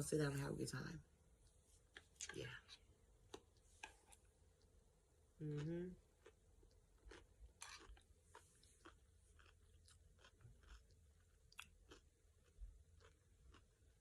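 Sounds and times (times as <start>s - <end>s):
chewing crisp food: 5.5s - 14.0s.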